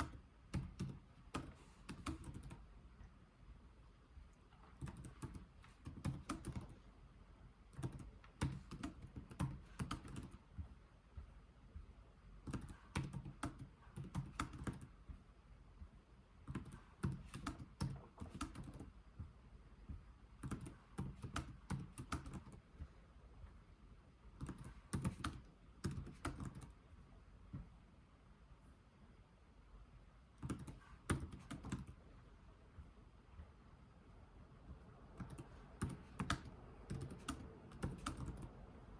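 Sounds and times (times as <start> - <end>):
typing on computer keyboard: 0.0 - 2.7, 4.6 - 6.8, 7.7 - 10.4, 12.4 - 15.0, 16.4 - 19.0, 20.4 - 22.7, 24.4 - 26.8, 30.4 - 32.0, 35.1 - 38.6.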